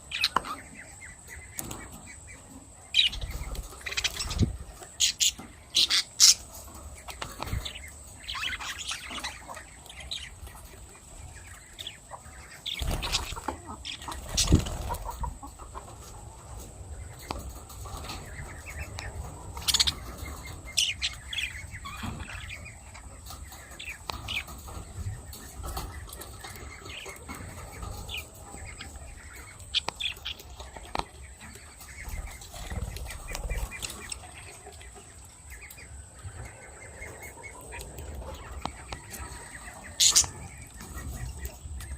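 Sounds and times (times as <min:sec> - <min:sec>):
birds fluttering wings: 0:12.6 - 0:15.9.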